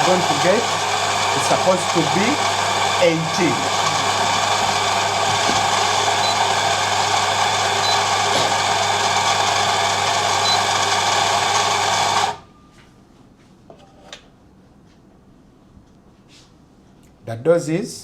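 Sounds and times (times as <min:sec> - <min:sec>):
coffee grinder motor running: 0:00.0 - 0:12.4.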